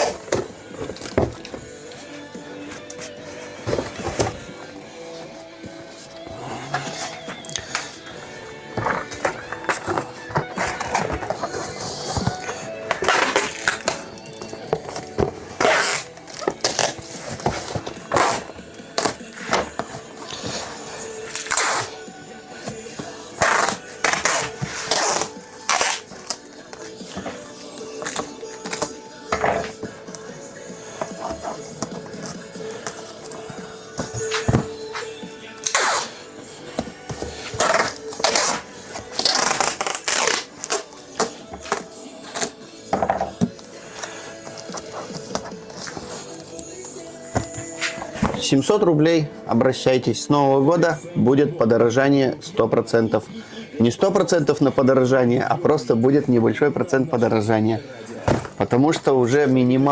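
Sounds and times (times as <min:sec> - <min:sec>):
packing tape ripping off roll: 0:00.0 - 0:01.6, 0:08.8 - 0:30.2, 0:31.0 - 0:36.3, 0:37.1 - 0:42.6
faint background music: 0:00.0 - 0:59.9.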